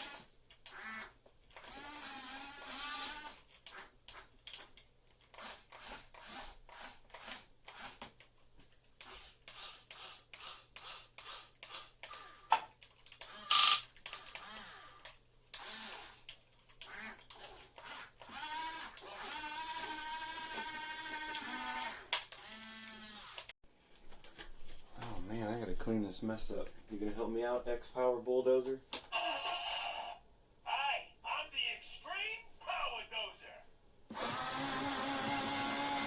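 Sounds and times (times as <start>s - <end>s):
small electric motors whirring: 9.0s - 12.5s, 13.2s - 16.2s, 16.8s - 23.5s, 34.1s - 36.0s.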